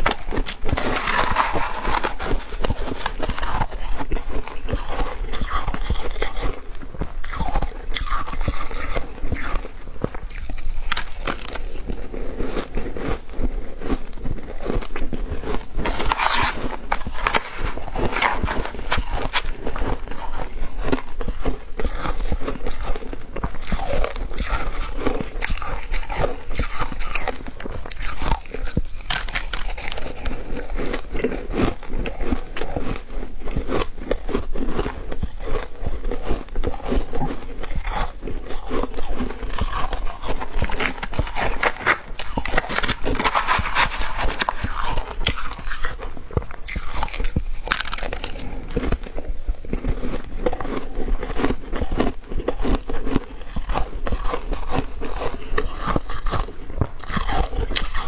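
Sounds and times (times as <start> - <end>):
shaved ice crunching: 10.3 - 12.0, 15.8 - 20.6, 27.9 - 30.7, 39.0 - 45.9, 46.6 - 48.6.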